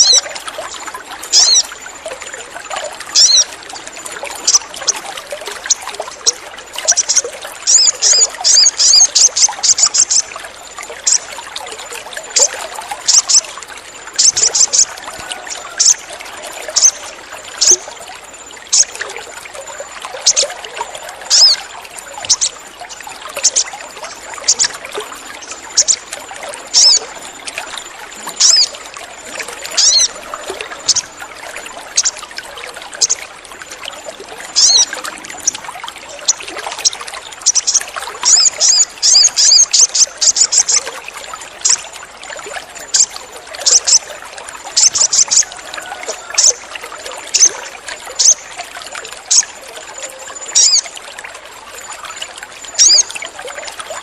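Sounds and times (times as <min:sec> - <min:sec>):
water trickling: 0:00.0 - 0:54.0
bird chirping: 0:22.2 - 0:22.5, 0:37.4 - 0:40.8, 0:52.8 - 0:53.1.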